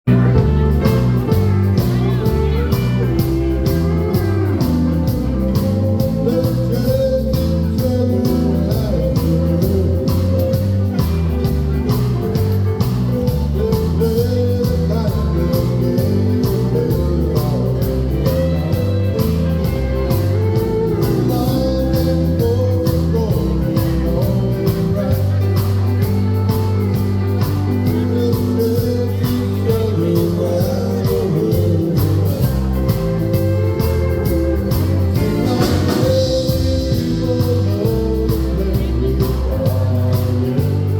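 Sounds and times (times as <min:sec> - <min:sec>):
bass line: 0:00.0 - 0:40.9
guitars playing: 0:00.0 - 0:40.9
person singing: 0:00.1 - 0:40.9.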